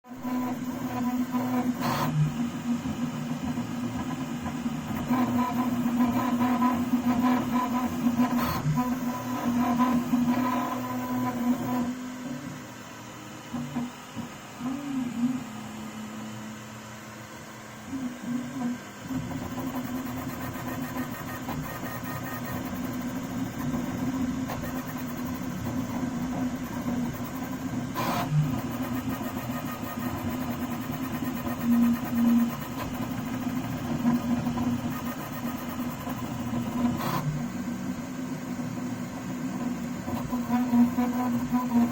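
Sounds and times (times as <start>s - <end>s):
mechanical hum: 0.0s - 41.9s
printer squeaking tone: 19.4s - 23.4s.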